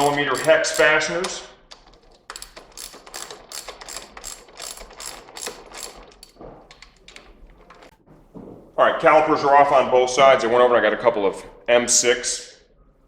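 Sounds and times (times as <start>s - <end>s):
hand ratchet clicking: 0.0s - 1.4s, 2.0s - 7.0s.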